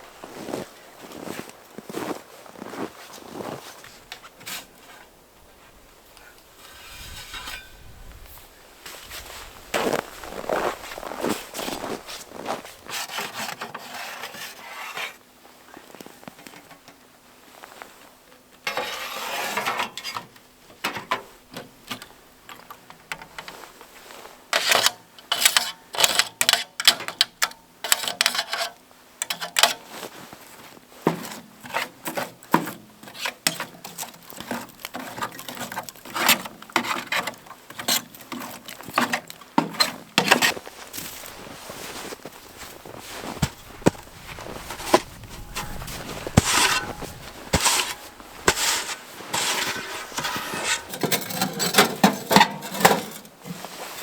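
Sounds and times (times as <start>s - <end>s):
gear rustling: 8.9s - 13.1s, 40.2s - 52.0s.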